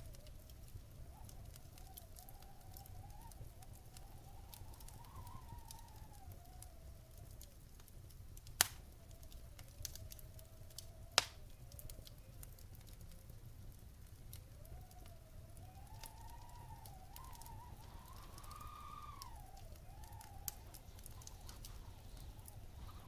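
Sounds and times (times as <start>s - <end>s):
low rumble of flames: 0.0s - 23.0s
wood fire crackling: 0.0s - 23.0s
loud pop from fire: 8.6s - 8.9s, 11.2s - 11.4s.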